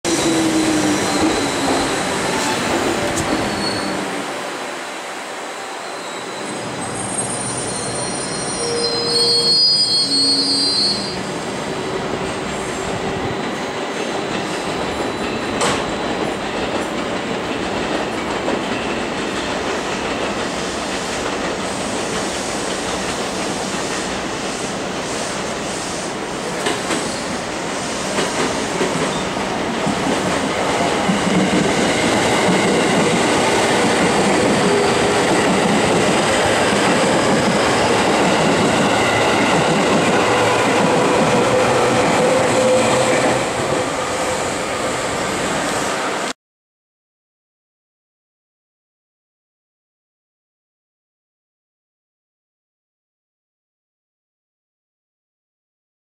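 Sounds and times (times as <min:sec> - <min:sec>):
high wheel squeal: 0:00.1 - 0:04.0, 0:05.7 - 0:11.4
train wheels rumbling: 0:11.3 - 0:46.0.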